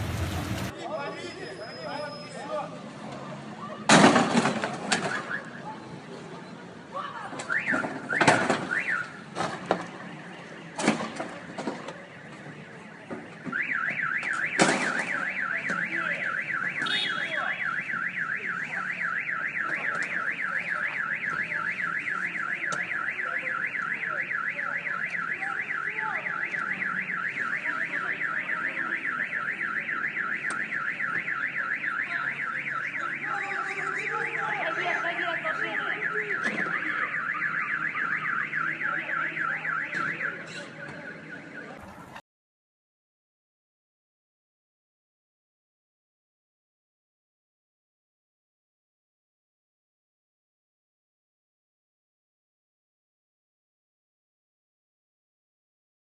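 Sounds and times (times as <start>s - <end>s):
loud bangs: 0.0s - 0.7s
car alarm warbling: 13.6s - 42.2s.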